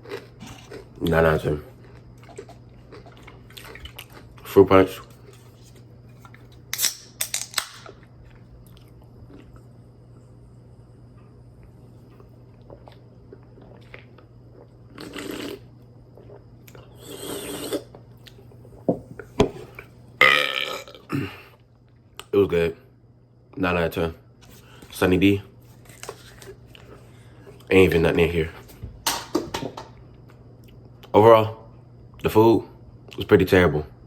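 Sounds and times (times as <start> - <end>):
sipping and swallowing: 0.0 - 1.2, 12.6 - 18.4
container clicks and handling: 6.8 - 8.0.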